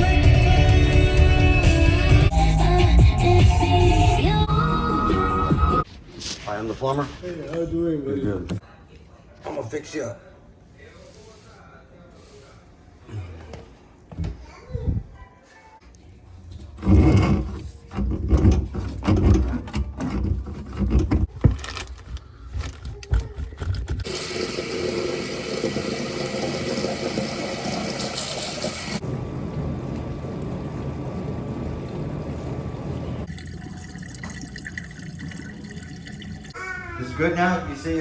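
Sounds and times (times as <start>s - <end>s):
knocking and clattering of plumbing: 16.7s - 21.6s.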